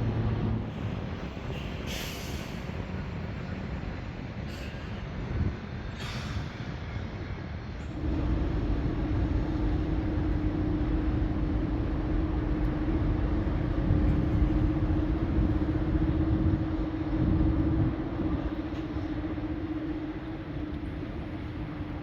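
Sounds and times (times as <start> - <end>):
vehicle running rumble: 0.0 - 0.9, 7.9 - 22.0.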